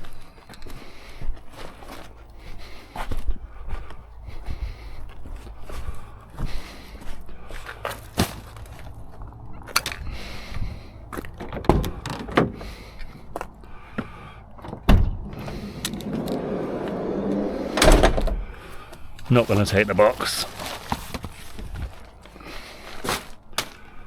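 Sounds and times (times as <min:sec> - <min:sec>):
knocks and thumps: 0:11.2 - 0:12.8, 0:14.0 - 0:18.6
rustling plastic and cardboard: 0:19.3 - 0:23.8.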